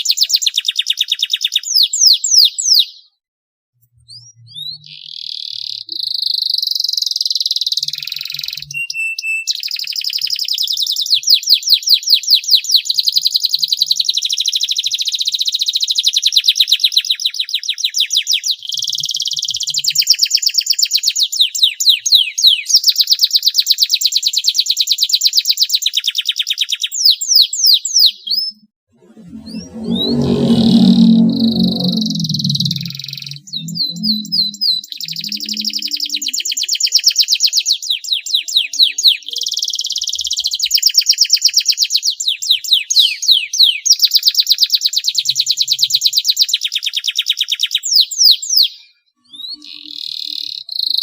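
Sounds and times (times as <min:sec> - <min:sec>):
canary singing trills: 0:29.4 - 0:40.5.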